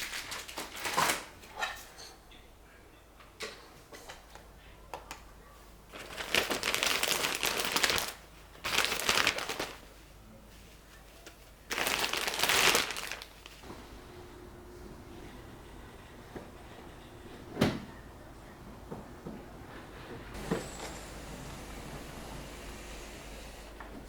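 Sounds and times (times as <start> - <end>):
plastic packaging crinkling: 0.0 - 1.3, 5.9 - 10.0, 11.7 - 13.6.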